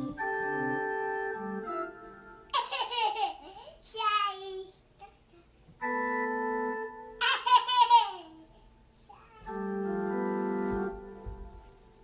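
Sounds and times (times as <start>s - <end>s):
sustained organ chords: 0.0s - 2.5s, 5.8s - 7.2s, 9.5s - 11.2s
young child laughing: 2.5s - 4.1s, 7.2s - 8.4s.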